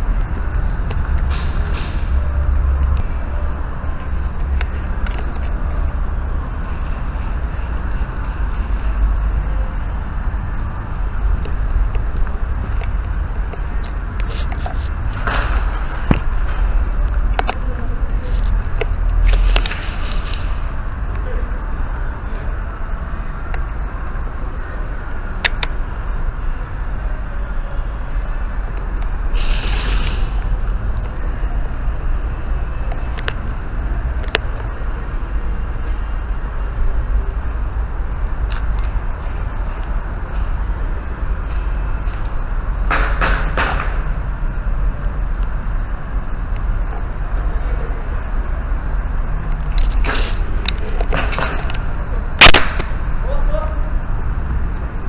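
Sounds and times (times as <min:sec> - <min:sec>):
low rumble: 0:00.0 - 0:42.9
airsoft gun shots: 0:52.4 - 0:53.0
sharp clicks: 0:52.4 - 0:53.0
loud sharp hit: 0:52.4 - 0:53.2.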